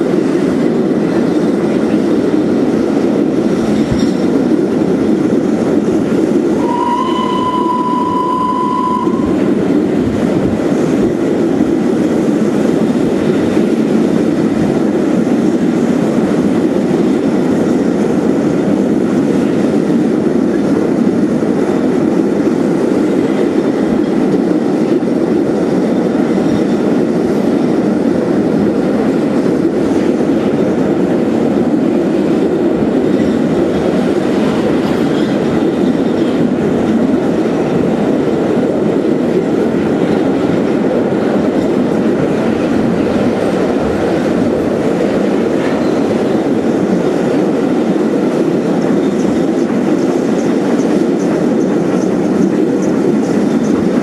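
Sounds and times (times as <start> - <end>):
train crossing steel bridge: 0.0 - 54.0
steady high tone: 6.6 - 9.6.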